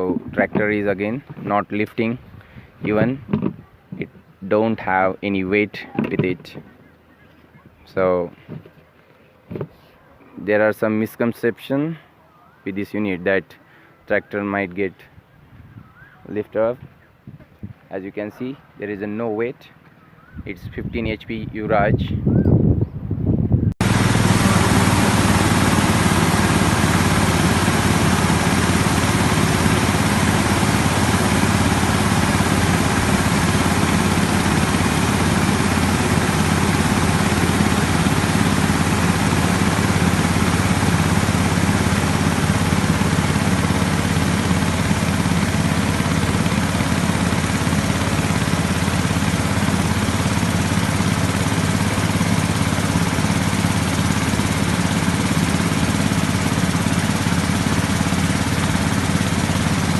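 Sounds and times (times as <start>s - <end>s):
sprayer fan air rush: 23.8s - 59.9s
tractor diesel engine running: 23.8s - 59.9s.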